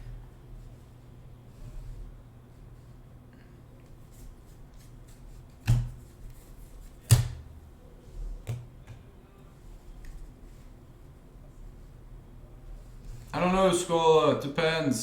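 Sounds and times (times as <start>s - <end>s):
cards being handled: 3.9s - 7.4s.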